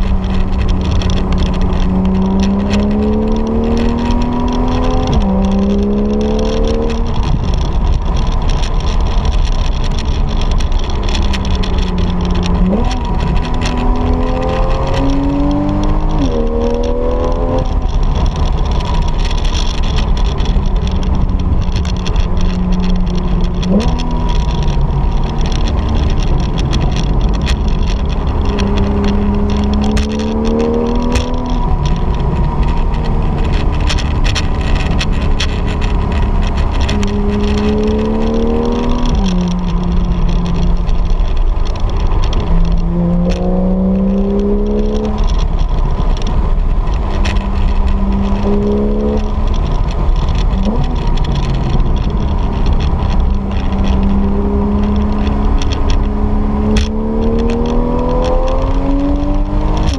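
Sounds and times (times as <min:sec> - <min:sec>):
car engine accelerating: 0:00.0 - 0:59.9
road and tyre noise: 0:00.0 - 0:59.9.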